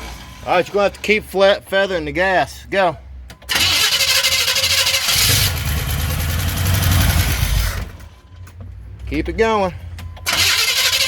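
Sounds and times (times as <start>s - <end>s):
truck engine cranking and running: 3.2s - 11.0s.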